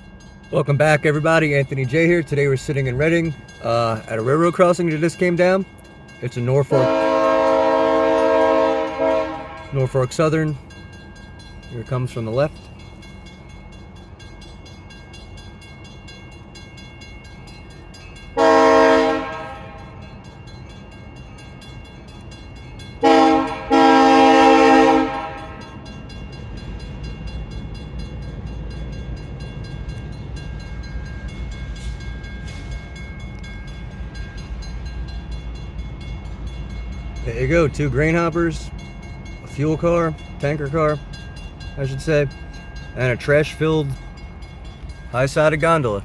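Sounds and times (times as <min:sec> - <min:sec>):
crossing bell ringing: 0:00.0 - 0:46.0
train rumbling past: 0:00.0 - 0:46.0
locomotive air horn blasts: 0:06.7 - 0:09.9, 0:18.4 - 0:20.0, 0:23.0 - 0:25.8.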